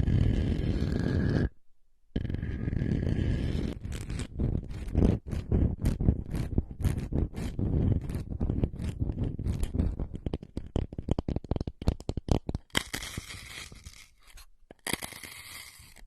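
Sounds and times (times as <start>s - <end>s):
crackling and scratching clicks: 2.2s - 16.0s.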